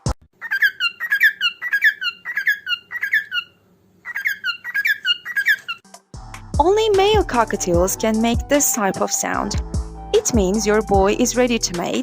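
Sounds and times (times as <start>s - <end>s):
cockatiel squeaky chirps: 0.4s - 5.8s.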